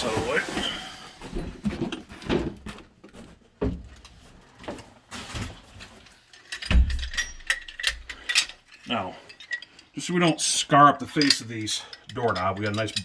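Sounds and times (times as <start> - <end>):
knocks and handling noises: 0.0 - 9.9.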